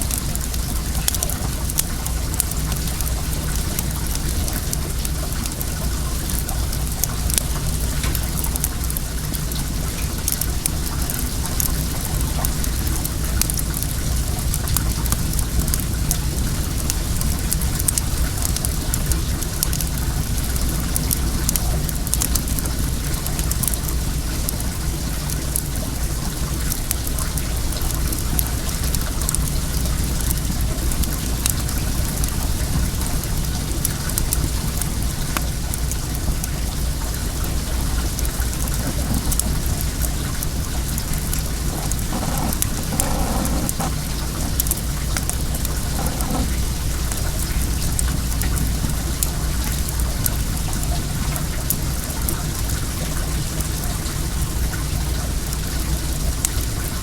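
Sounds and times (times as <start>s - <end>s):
bonfire crackling: 0.0s - 52.7s
water running: 37.6s - 47.0s.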